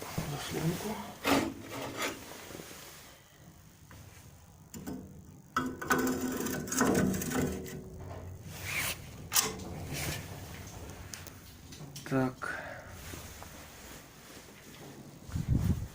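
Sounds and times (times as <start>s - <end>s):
metal on metal scraping: 1.1s - 2.5s, 4.7s - 12.0s.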